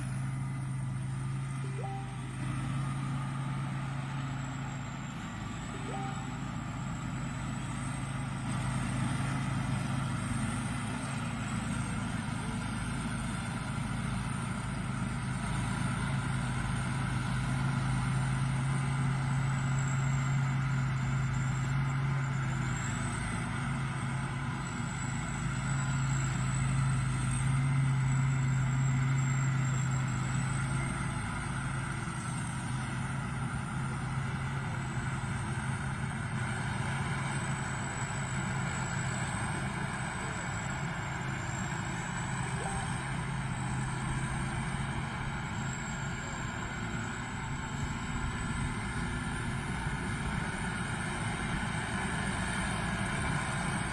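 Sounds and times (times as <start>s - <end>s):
thin high wavering whine: 0.0s - 12.0s, 36.8s - 51.0s
combine harvester engine drone: 0.0s - 53.9s.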